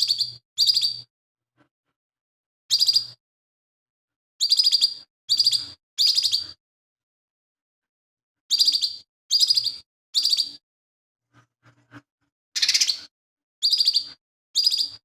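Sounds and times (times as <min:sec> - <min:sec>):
bird chattering song: 0:00.0 - 0:01.1, 0:02.7 - 0:03.2, 0:04.4 - 0:06.6, 0:08.5 - 0:10.6, 0:12.6 - 0:15.0.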